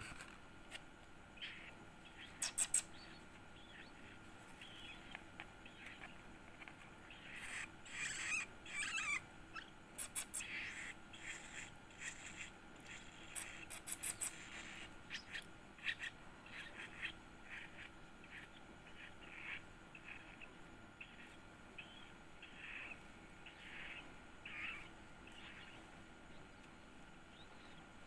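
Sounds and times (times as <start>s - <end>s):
bird nestling begging calls: 7.1s - 12.4s, 21.8s - 25.8s.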